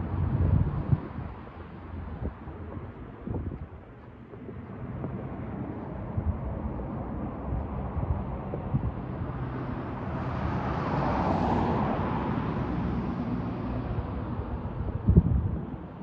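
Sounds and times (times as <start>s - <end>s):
car driving past on snow: 9.2s - 14.1s.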